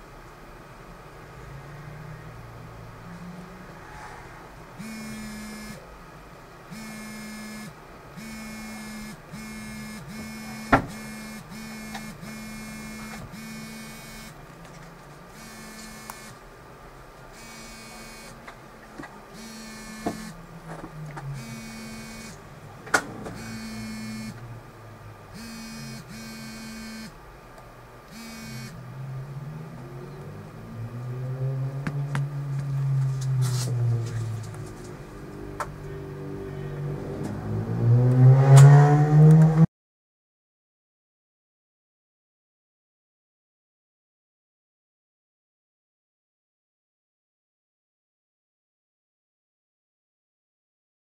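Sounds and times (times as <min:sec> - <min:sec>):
electric buzz: 0:04.5 - 0:05.9, 0:06.7 - 0:14.4, 0:15.3 - 0:16.4, 0:17.3 - 0:18.4, 0:19.3 - 0:20.6, 0:21.2 - 0:27.2, 0:28.1 - 0:29.0.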